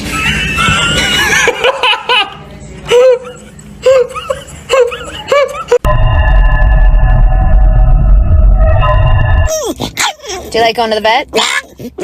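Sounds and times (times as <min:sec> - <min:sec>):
person laughing: 0:00.1 - 0:05.9.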